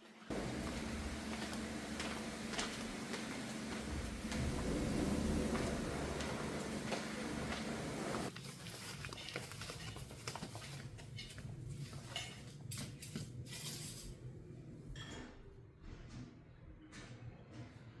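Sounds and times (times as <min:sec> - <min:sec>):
soft steady hiss: 0:00.3 - 0:08.3.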